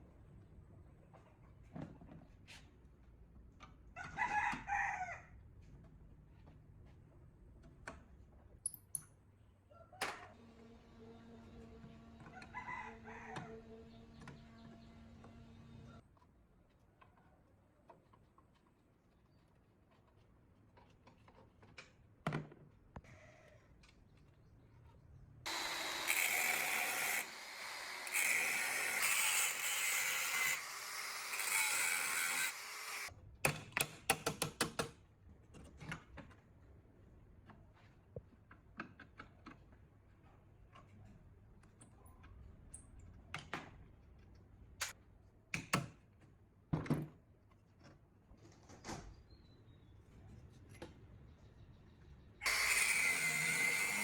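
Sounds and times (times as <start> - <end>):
power tool running: 25.5 - 33.1, 52.4 - 54.0.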